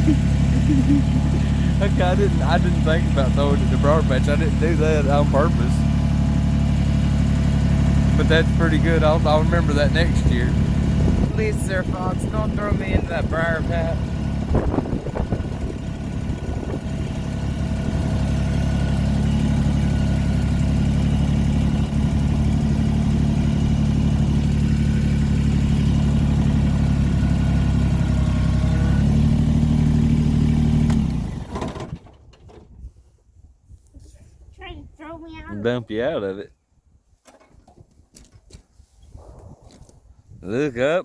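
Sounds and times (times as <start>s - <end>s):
tractor engine droning: 0.0s - 32.6s.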